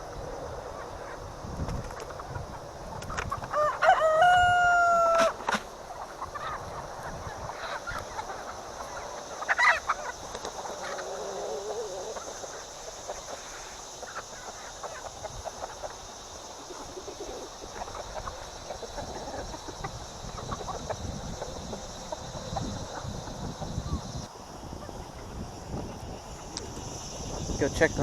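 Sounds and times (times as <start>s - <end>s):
wind rumbling on microphone: 0.0s - 9.0s, 15.1s - 28.0s
chickens clucking: 0.6s - 28.0s
chicken squawk: 3.1s - 24.2s.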